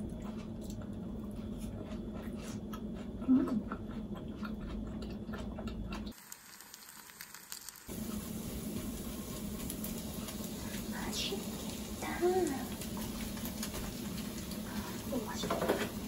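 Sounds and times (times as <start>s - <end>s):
low steady hum: 0.0s - 6.8s
crunchy chewing: 0.0s - 10.8s.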